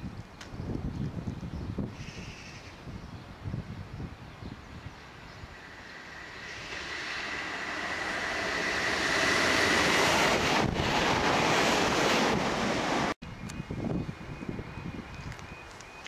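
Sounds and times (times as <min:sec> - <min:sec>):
train wheels rushing on rails: 0:05.0 - 0:13.2
high electric whine: 0:05.1 - 0:10.5.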